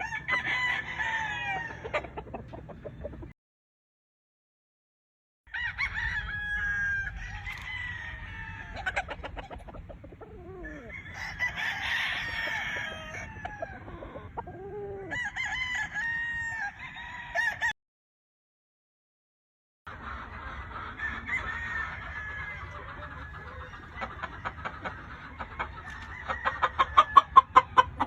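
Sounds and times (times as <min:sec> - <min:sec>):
roosters crowing: 0:00.0 - 0:03.2, 0:05.5 - 0:17.7, 0:20.4 - 0:28.0
chickens clucking: 0:00.0 - 0:03.3, 0:07.2 - 0:15.2, 0:19.9 - 0:28.0.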